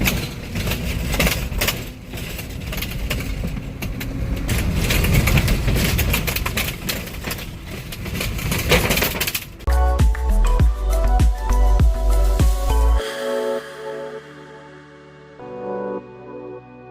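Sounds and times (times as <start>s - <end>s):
tires rumbling over bridge deck: 0.0s - 11.8s.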